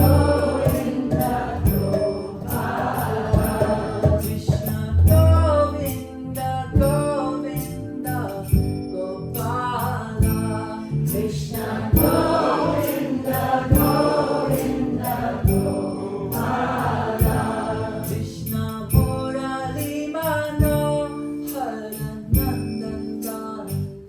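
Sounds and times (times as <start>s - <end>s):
voices singing a chant: 0.0s - 5.0s, 11.1s - 18.5s
steady drum beat: 0.0s - 5.8s, 11.8s - 17.8s.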